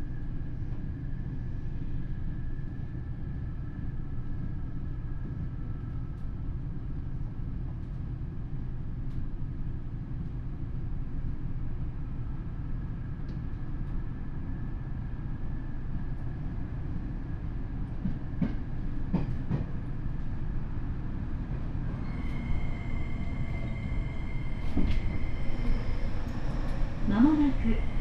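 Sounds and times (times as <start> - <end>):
high whine of train motors: 0.0 - 28.0
train wheels rumbling on rail: 7.5 - 28.0.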